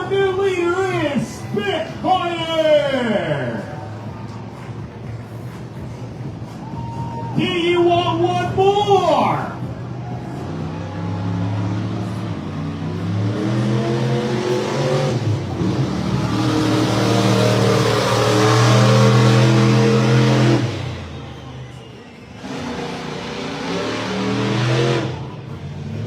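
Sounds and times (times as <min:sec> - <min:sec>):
truck engine revving hard: 0:09.6 - 0:26.0.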